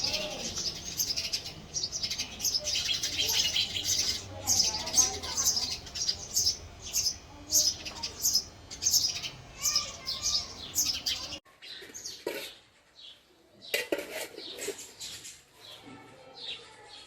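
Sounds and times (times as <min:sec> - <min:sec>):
sparrow chirping: 0:00.0 - 0:13.2.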